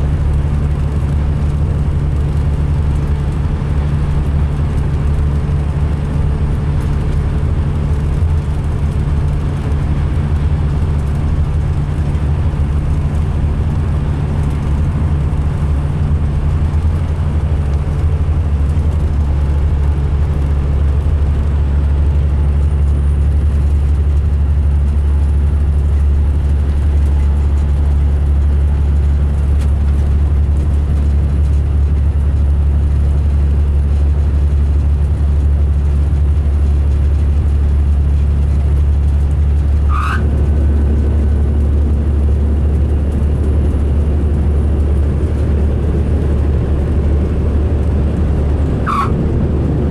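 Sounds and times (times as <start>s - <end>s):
diesel engine droning: 0.0s - 49.9s
faint high whistle: 39.9s - 40.2s, 48.9s - 49.2s.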